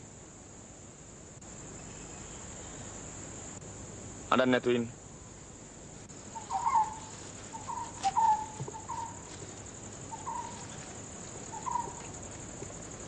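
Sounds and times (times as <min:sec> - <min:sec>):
crickets chirring: 0:00.0 - 0:13.0
birds chirping: 0:06.1 - 0:13.0.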